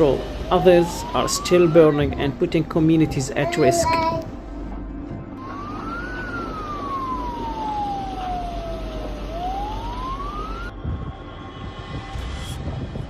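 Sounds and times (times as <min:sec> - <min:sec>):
emergency vehicle siren wailing: 0:00.0 - 0:04.0, 0:05.4 - 0:10.8
steady rushing noise: 0:00.0 - 0:13.0.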